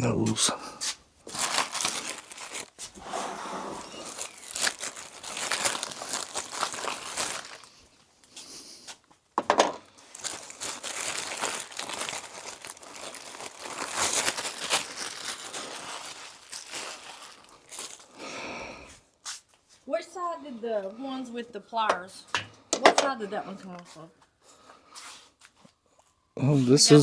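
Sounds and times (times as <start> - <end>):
plastic packaging crinkling: 1.2 - 3.0, 3.8 - 8.0, 9.8 - 18.4.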